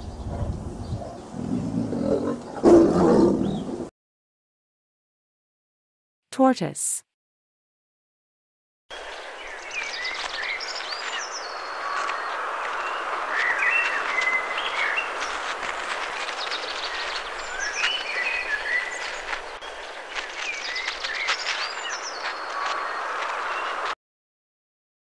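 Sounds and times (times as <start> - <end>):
birds chirping: 3.2 - 3.8, 8.9 - 23.9.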